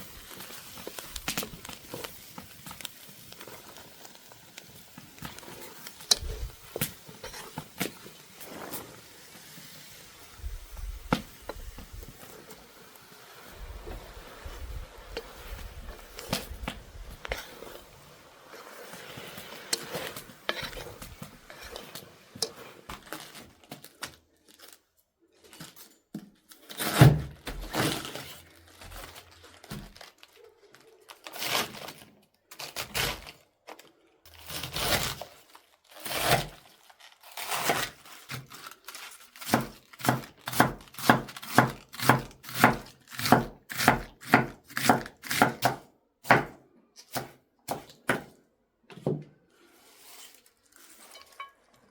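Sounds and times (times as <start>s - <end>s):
rustling: 0.0s - 24.8s.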